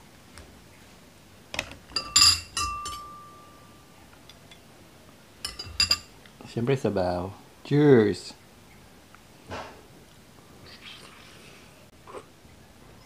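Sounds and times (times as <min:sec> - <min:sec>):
metal spoon clinking ceramic bowl: 0:01.9 - 0:03.7, 0:05.4 - 0:06.1.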